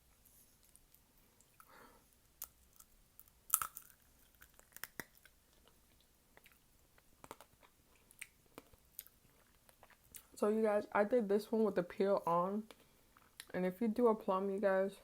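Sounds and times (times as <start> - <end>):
chewing crunchy candied fruit: 2.4 - 10.4.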